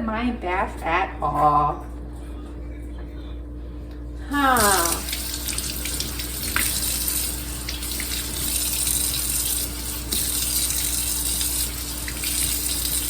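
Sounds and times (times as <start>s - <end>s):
tap water running into sink: 4.6s - 13.0s.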